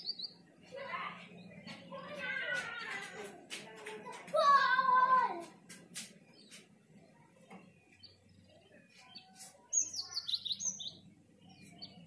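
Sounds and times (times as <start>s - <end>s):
small bird chirping: 0.0s - 0.5s, 5.9s - 12.0s.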